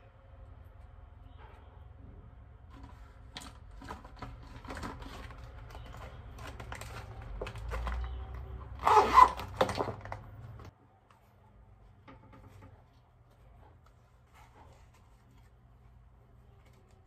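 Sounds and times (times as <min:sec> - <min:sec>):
low room hum: 0:00.0 - 0:17.0
plastic pouch clicks and rustles: 0:02.8 - 0:10.7.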